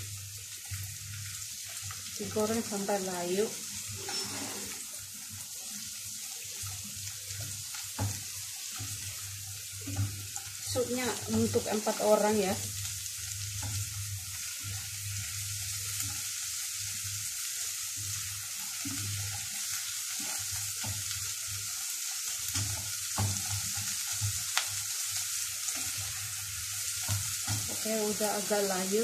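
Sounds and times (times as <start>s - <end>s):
leeks sizzling in butter: 0.0s - 29.0s
spatula scraping a pan: 3.8s - 11.4s, 18.1s - 28.6s
spatula tapping a pan: 7.3s - 10.6s, 18.1s - 21.4s, 22.3s - 24.8s, 26.9s - 27.8s.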